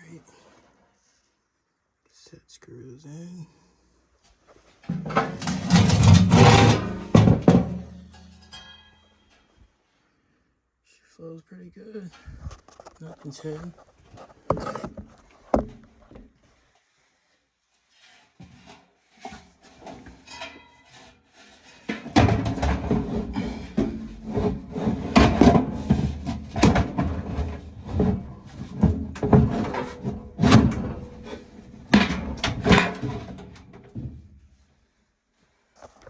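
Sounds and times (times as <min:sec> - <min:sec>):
metal parts rubbing and knocking: 0:04.9 - 0:08.8, 0:19.7 - 0:34.0.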